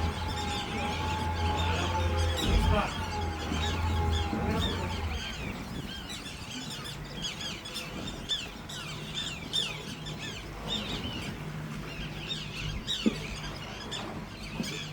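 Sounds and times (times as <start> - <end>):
tern chicks chirping: 0.0 - 9.1.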